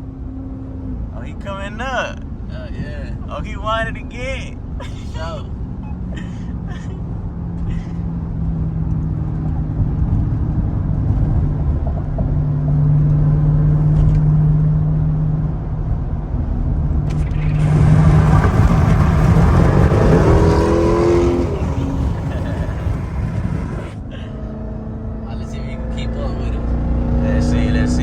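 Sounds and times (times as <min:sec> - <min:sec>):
wind and road noise: 0:00.0 - 0:28.0
car engine drone from cabin: 0:17.1 - 0:24.0.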